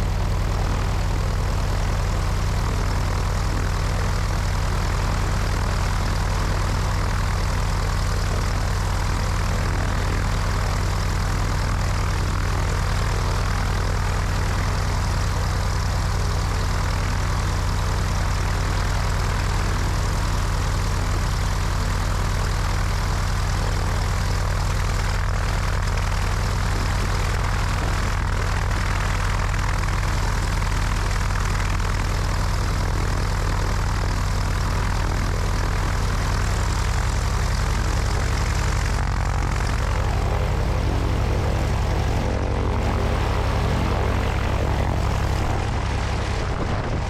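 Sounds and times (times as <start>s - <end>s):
propeller plane engine droning: 0.0s - 47.0s
wind rushing over microphone: 38.9s - 47.0s.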